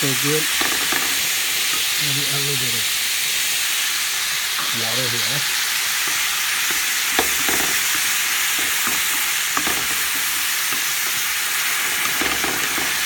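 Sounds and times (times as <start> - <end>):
green beans sizzling in oil: 0.0 - 13.0
stirring clicks and scrapes: 6.0 - 13.0.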